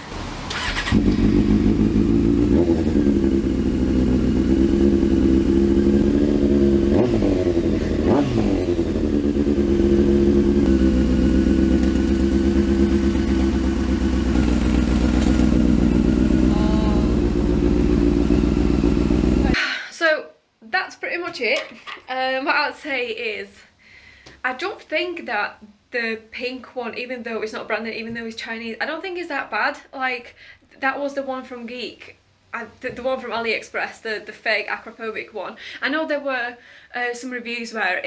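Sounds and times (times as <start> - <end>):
motorcycle engine idling loudly: 0.6 - 19.6.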